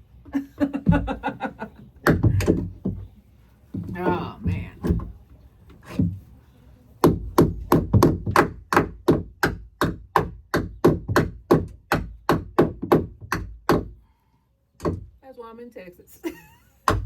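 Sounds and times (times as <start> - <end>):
hammer driving nail into wood: 7.0 - 13.9.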